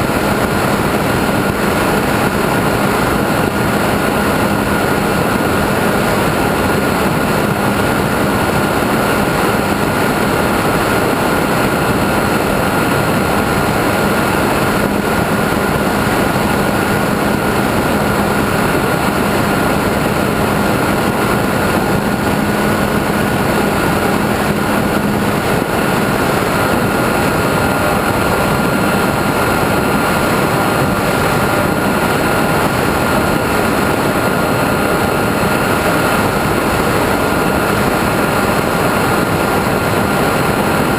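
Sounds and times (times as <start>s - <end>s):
high-pitched motor and propeller: 0.0s - 40.9s
low hum: 0.0s - 40.9s
wind rushing: 0.0s - 40.9s.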